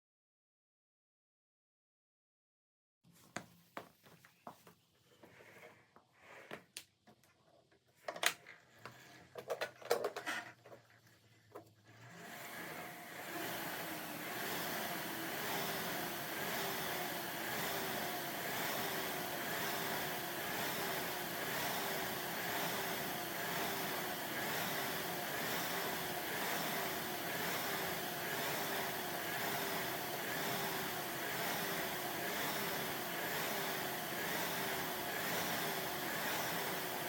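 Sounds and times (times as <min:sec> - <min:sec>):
exercise machine whooshing: 0:12.0 - 0:37.0.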